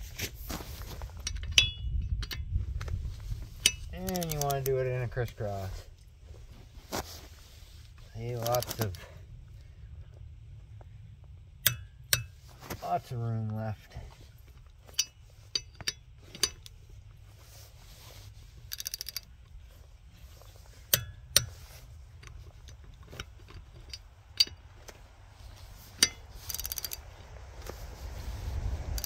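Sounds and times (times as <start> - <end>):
torque wrench clicks: 3.6 - 4.8, 18.7 - 19.3, 26.0 - 27.1
torque wrench ratcheting: 3.7 - 4.7, 18.6 - 19.3, 26.0 - 27.0.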